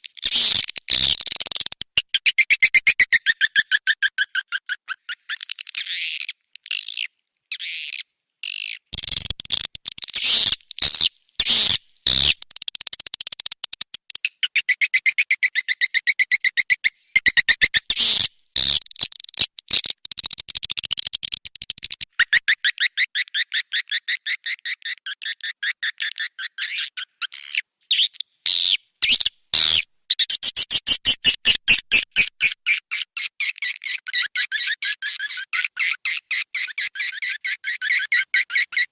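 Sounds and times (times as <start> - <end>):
chattering bird chirps: 0.2 - 7.7, 8.7 - 38.9
longer swiftlet calls: 9.0 - 24.2.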